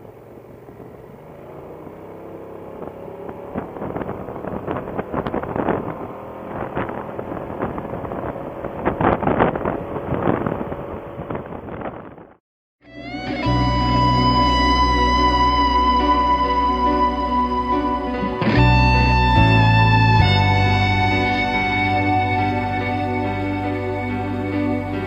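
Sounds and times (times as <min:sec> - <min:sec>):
motorcycle engine running: 0:00.0 - 0:12.4
wind buffeting microphone: 0:02.8 - 0:12.4.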